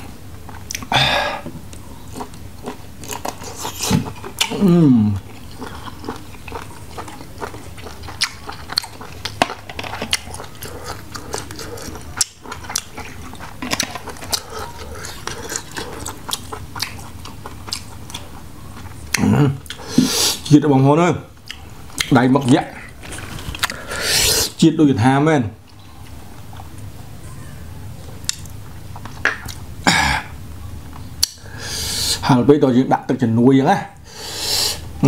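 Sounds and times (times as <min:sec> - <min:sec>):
chewing fried squid: 0:01.7 - 0:20.6.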